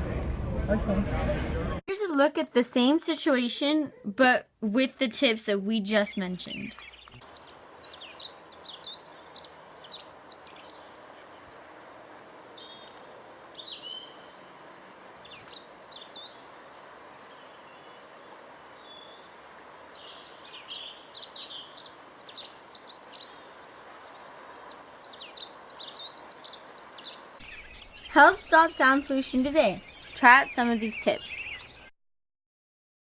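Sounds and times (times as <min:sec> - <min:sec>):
outdoor ambient noise: 0:00.0 - 0:31.9
small birds chirping: 0:05.9 - 0:31.9.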